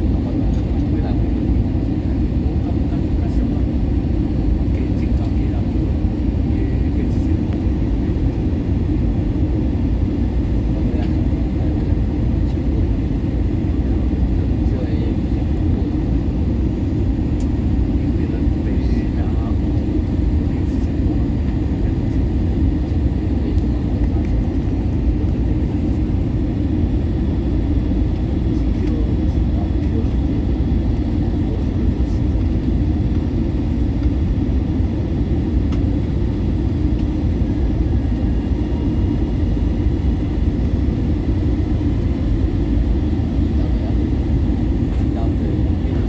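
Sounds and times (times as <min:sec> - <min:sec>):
airliner cabin engine rumble: 0:00.0 - 0:46.0.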